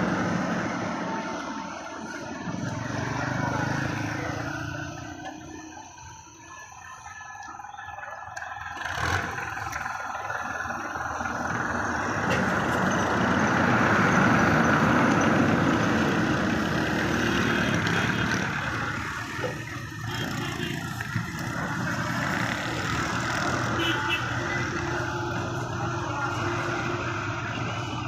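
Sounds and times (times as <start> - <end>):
tractor engine under heavy load: 0.0 - 28.0.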